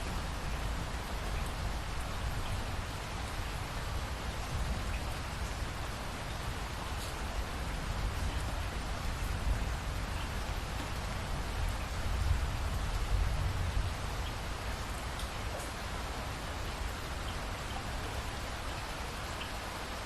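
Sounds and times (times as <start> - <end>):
raindrops ticking: 0.0 - 15.9
steady rainfall: 0.0 - 20.0.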